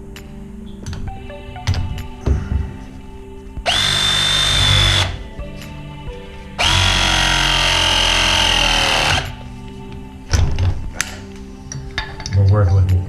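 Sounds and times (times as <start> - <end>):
power tool motor whining: 3.7 - 5.2, 6.6 - 9.4.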